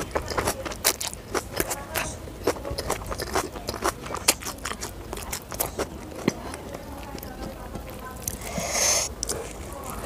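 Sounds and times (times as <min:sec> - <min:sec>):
chewing with wet mouth clicks: 0:00.0 - 0:10.0.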